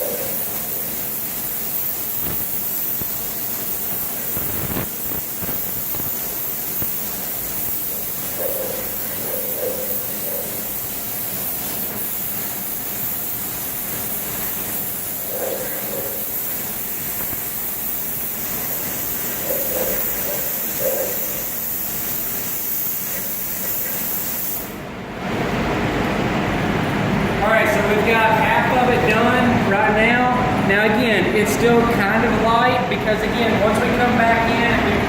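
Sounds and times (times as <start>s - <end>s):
spray gun hissing: 0.0s - 24.8s
paint booth running noise: 0.0s - 35.0s.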